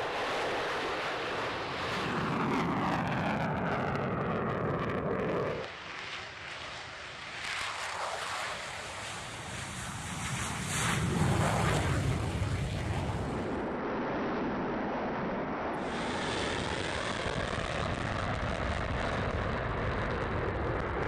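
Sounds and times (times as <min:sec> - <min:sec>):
jet roaring past: 0:00.0 - 0:21.0.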